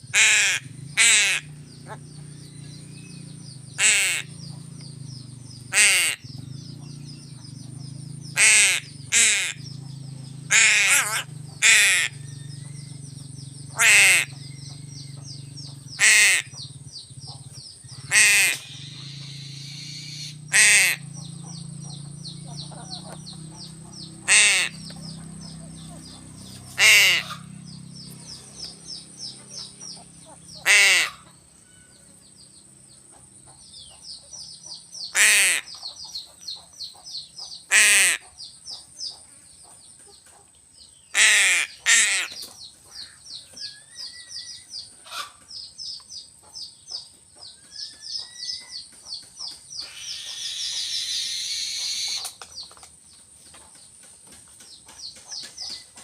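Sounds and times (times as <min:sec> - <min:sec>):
crow cawing: 0:00.0 - 0:02.0, 0:03.8 - 0:04.4, 0:05.7 - 0:06.3, 0:08.4 - 0:09.8, 0:10.5 - 0:12.4, 0:13.7 - 0:14.7, 0:16.0 - 0:16.6, 0:18.0 - 0:21.2, 0:22.6 - 0:27.6, 0:30.2 - 0:32.0, 0:35.1 - 0:35.8, 0:37.7 - 0:38.3, 0:41.1 - 0:43.4
low hum: 0:00.0 - 0:35.1
fast faint chirping: 0:00.0 - 0:40.2.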